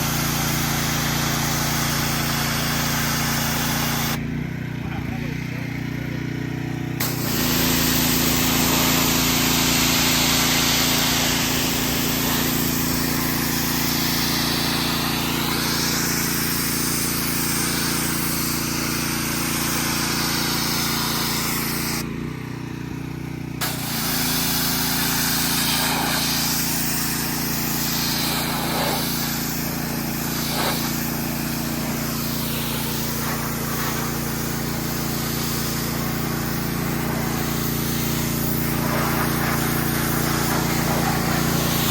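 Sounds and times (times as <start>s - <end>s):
pressure washer spraying: 0.0s - 4.2s, 7.0s - 22.2s, 23.5s - 41.9s
motor humming: 7.0s - 22.1s, 23.6s - 41.9s.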